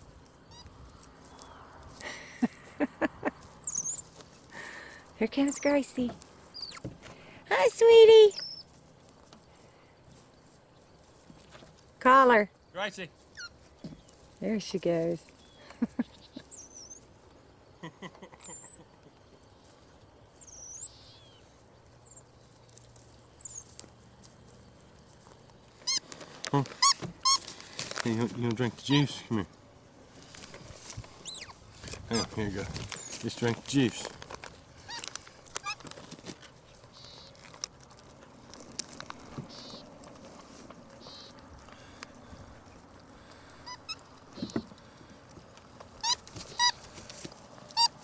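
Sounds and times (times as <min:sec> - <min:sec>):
high-pitched animal chirps: 0:00.4 - 0:00.7, 0:03.6 - 0:04.1, 0:06.5 - 0:06.9, 0:08.3 - 0:09.1, 0:16.2 - 0:17.0, 0:18.4 - 0:18.9, 0:20.4 - 0:21.4, 0:25.8 - 0:26.0, 0:31.2 - 0:32.3, 0:41.0 - 0:41.4, 0:43.6 - 0:44.6, 0:46.0 - 0:46.8, 0:47.8 - 0:48.0
brief squeaks: 0:06.6 - 0:06.9, 0:26.8 - 0:27.4, 0:46.0 - 0:46.8.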